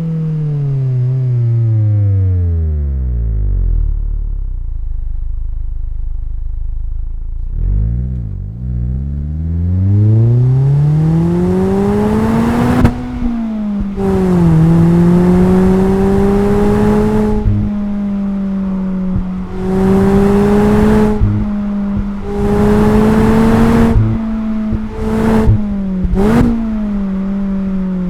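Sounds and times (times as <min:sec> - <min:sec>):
car engine revving and accelerating: 0:07.4 - 0:28.0.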